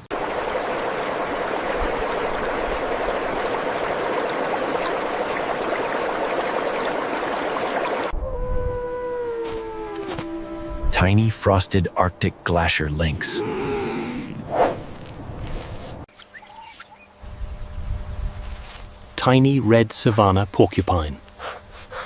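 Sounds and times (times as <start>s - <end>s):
flowing water rushing: 0.0s - 8.1s.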